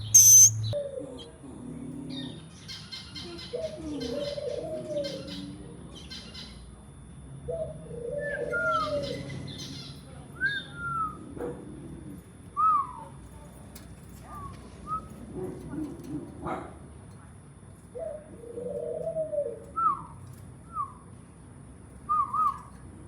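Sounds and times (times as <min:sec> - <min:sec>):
bird warbling call: 0:00.0 - 0:00.8
birds chirping: 0:00.0 - 0:00.8
short downslurred bird whistles: 0:00.0 - 0:00.8.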